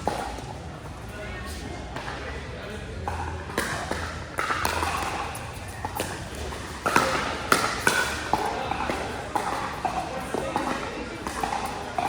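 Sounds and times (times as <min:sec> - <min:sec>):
faint background voices: 0:00.0 - 0:12.0
paddles hitting plastic ball: 0:03.1 - 0:12.0.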